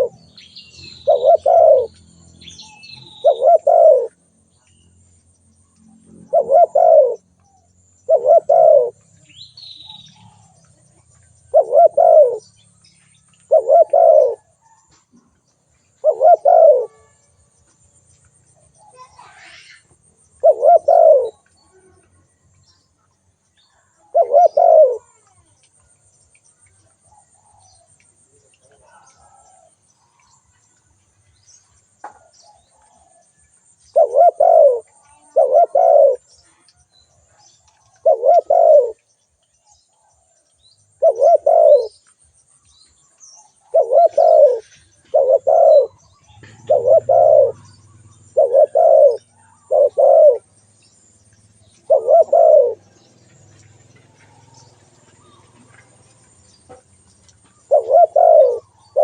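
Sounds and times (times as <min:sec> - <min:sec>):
dove cooing: 0:00.0 - 0:02.0, 0:02.6 - 0:04.2, 0:05.9 - 0:07.3, 0:08.0 - 0:09.1, 0:09.8 - 0:12.6, 0:13.4 - 0:14.8, 0:16.0 - 0:17.2, 0:18.7 - 0:22.1, 0:23.9 - 0:25.5, 0:33.9 - 0:36.7, 0:37.9 - 0:39.0, 0:41.0 - 0:42.0, 0:43.6 - 0:50.5, 0:51.7 - 0:53.0, 0:57.5 - 0:59.0
small birds chirping: 0:00.0 - 0:59.0.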